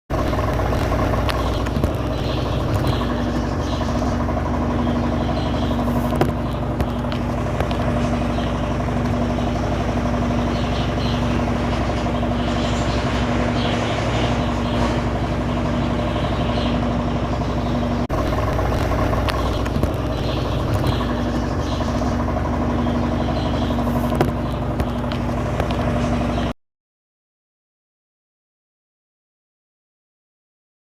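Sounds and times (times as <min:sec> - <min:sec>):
washing machine running: 0:00.1 - 0:26.6.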